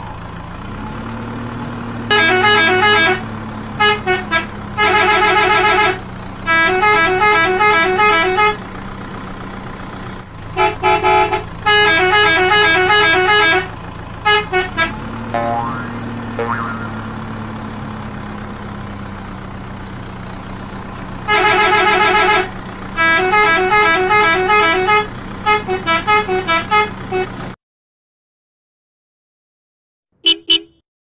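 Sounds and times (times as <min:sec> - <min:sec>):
beeping horn tones: 0:02.1 - 0:08.6, 0:21.3 - 0:27.4, 0:30.2 - 0:30.8.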